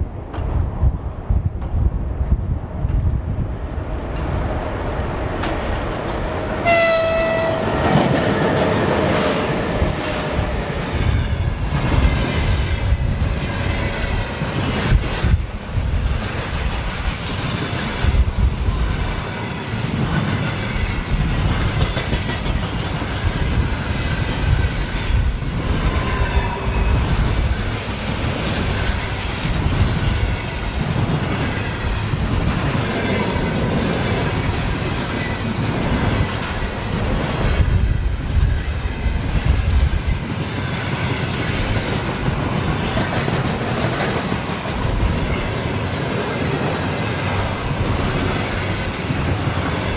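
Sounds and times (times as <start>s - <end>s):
freight train rumbling past: 0.0s - 49.9s
wheel squeals: 6.6s - 9.2s.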